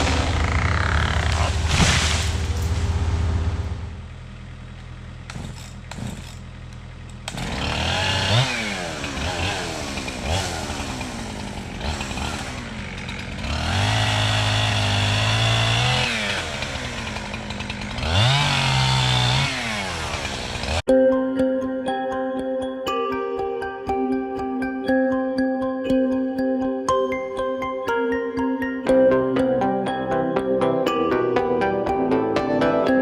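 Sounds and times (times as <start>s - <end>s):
chainsaw revving: 0.0s - 1.8s, 5.3s - 6.5s, 7.2s - 20.9s.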